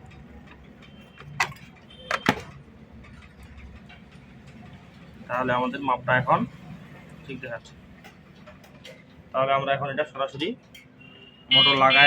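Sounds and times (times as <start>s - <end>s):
handling clicks and knocks: 0.0s - 4.6s.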